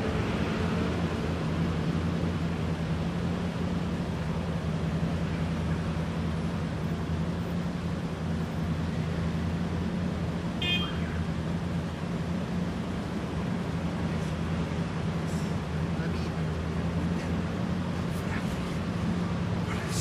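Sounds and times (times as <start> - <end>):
car engines idling: 0.0 - 20.0.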